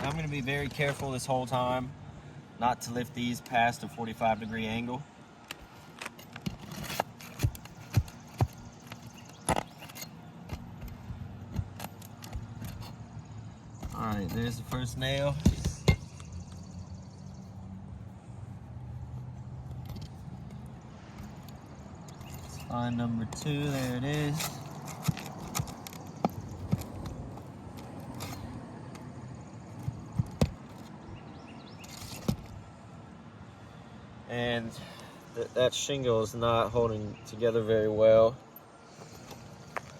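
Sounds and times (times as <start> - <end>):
metallic knocks and clicks: 13.8 - 16.6.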